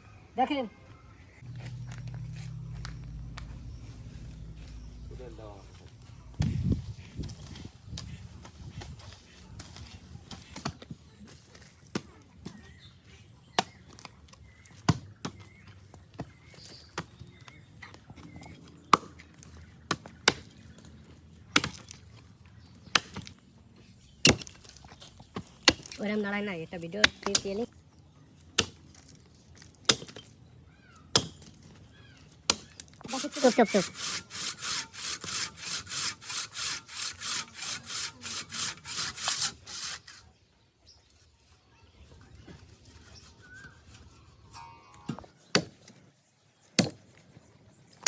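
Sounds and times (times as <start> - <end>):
hand tool striking wood: 31.1 - 31.7, 32.4 - 40.1.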